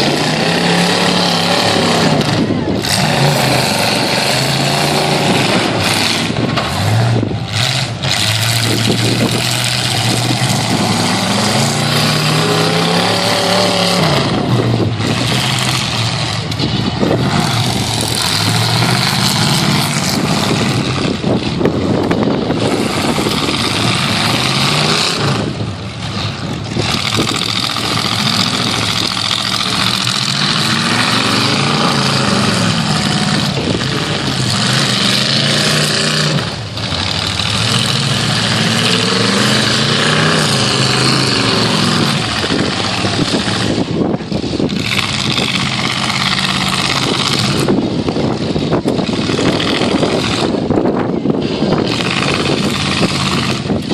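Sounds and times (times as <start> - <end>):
pickup truck engines revving: 0.0 - 53.9
several engines running: 0.0 - 53.9.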